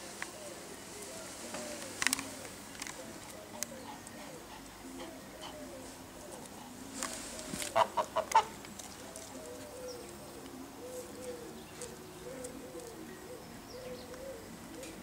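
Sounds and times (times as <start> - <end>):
bird calling with soft low notes: 7.4 - 15.0.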